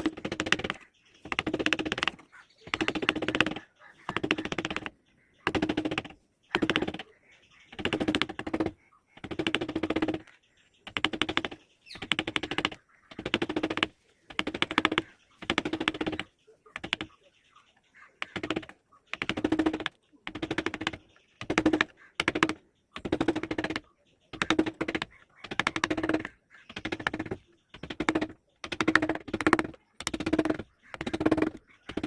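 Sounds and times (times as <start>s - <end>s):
hand tool rasping wood: 0.0s - 4.9s, 18.2s - 32.0s.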